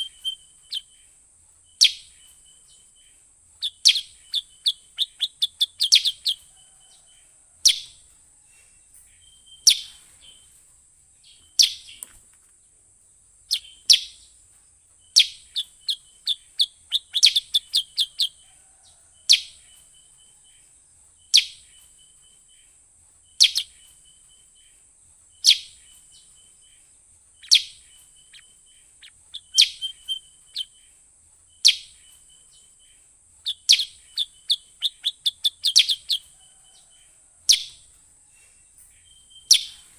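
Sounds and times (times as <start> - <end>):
bulbul calls: 0.0 - 1.1, 1.8 - 2.4, 3.6 - 6.5, 9.6 - 10.0, 15.1 - 18.4, 23.3 - 23.9, 25.4 - 26.0, 27.4 - 30.9, 31.6 - 32.2, 33.4 - 36.9, 37.5 - 37.8, 39.4 - 39.9
steady high hiss: 0.0 - 39.9.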